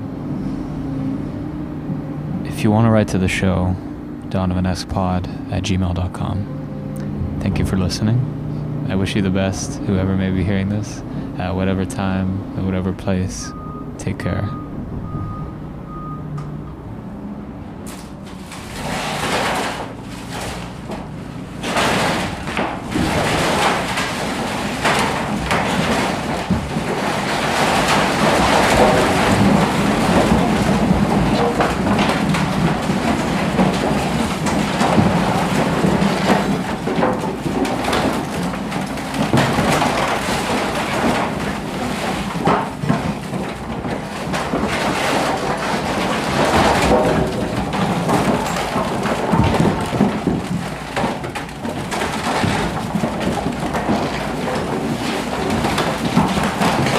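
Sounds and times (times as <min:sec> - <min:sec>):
excavator diesel engine running: 0:00.0 - 0:56.9
stone and rubble crashing: 0:17.9 - 0:56.9.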